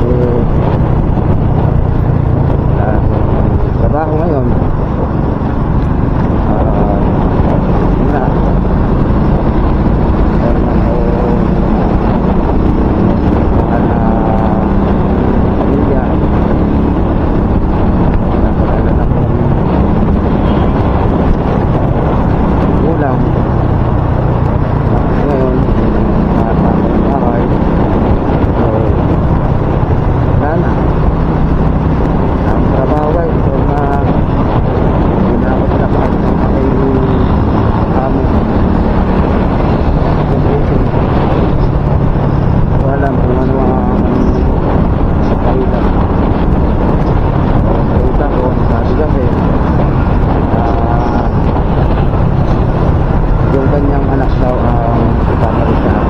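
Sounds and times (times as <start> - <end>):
wind buffeting a microphone: 0.0 - 56.0.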